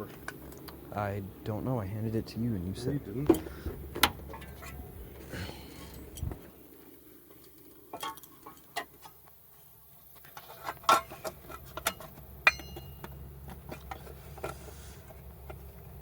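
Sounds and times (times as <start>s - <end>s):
metal tools clicking and clinking: 10.9s - 13.2s
sharp metallic clink: 12.4s - 13.1s.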